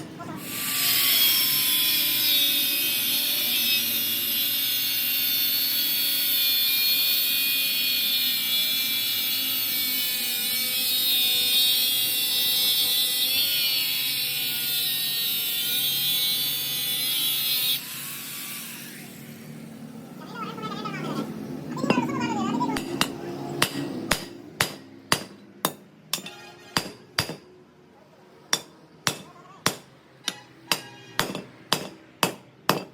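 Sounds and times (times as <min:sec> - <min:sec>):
power tool whining on metal: 0:00.4 - 0:19.7.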